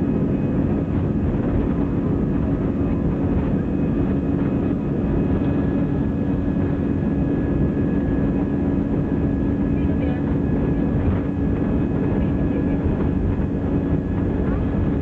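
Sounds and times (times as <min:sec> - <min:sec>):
aircraft engines rumbling: 0:00.0 - 0:15.0
steady hum: 0:00.0 - 0:15.0.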